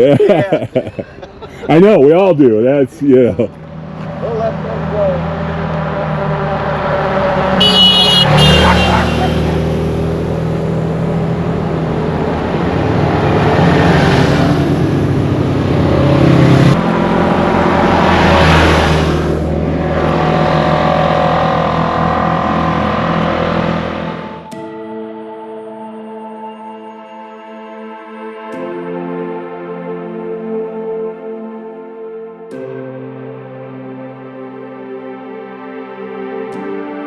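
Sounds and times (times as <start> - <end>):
utility vehicle engines revving: 0.0 - 24.5.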